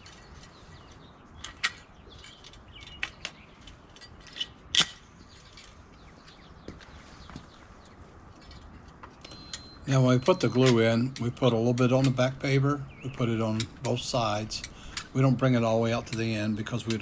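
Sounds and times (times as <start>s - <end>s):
pavers clicking and knocking: 9.2s - 17.0s.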